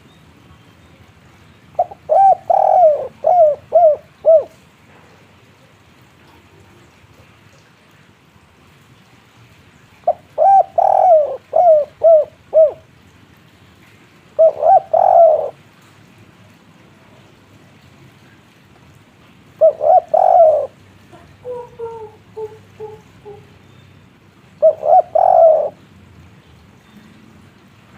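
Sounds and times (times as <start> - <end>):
dove cooing: 1.8 - 4.6, 10.1 - 12.9, 14.4 - 15.6, 19.6 - 23.6, 24.6 - 25.8.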